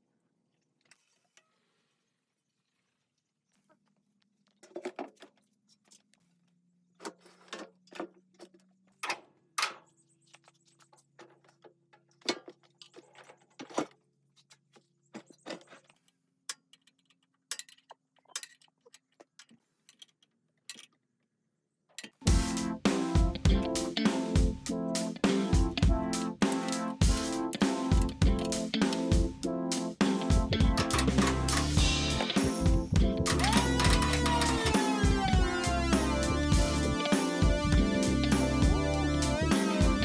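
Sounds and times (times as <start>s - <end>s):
metal parts and tools clinking: 15.2s - 21.0s, 26.2s - 29.3s, 30.8s - 35.3s.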